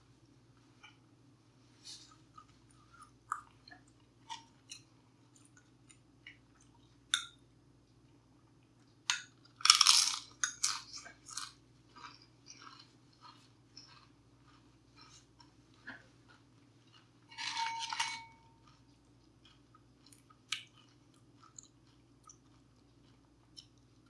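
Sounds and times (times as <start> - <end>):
crunchy bite and chewing: 9.6 - 15.3.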